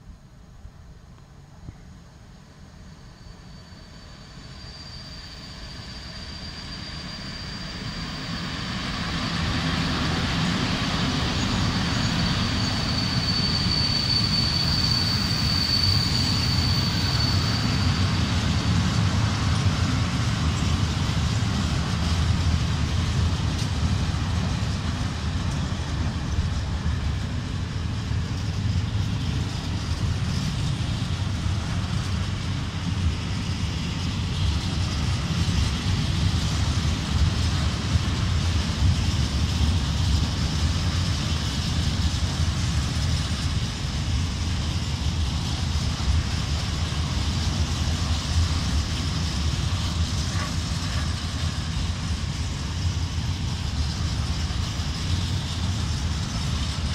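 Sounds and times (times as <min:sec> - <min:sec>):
high-pitched squeal: 0:02.8 - 0:22.2
wagon wheels rumbling on rails: 0:10.1 - 0:56.9.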